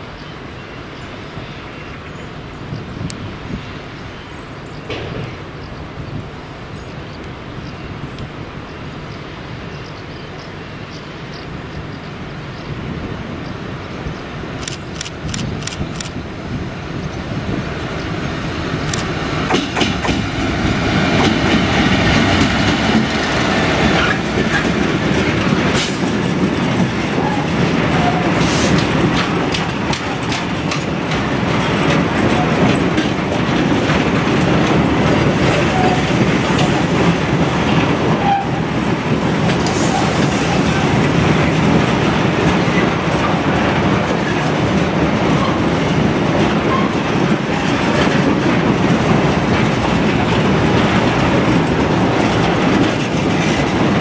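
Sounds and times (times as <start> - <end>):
diesel locomotive engine passing: 0.1 - 54.0
train wheel clatter: 4.8 - 5.6, 17.4 - 54.0.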